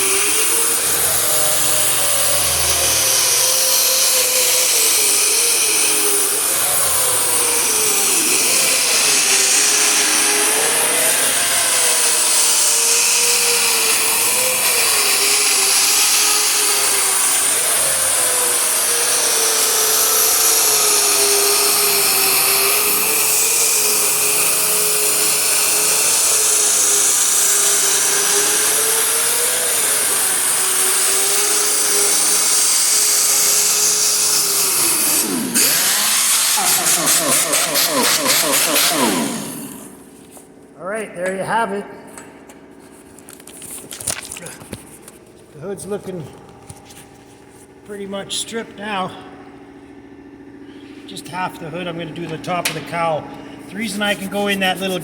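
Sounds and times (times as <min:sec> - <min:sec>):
grinder motor whine: 0:00.0 - 0:40.5.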